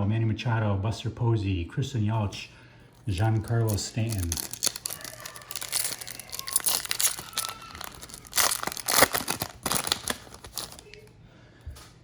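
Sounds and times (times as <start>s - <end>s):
wrapper tearing and crinkling: 3.0s - 11.1s.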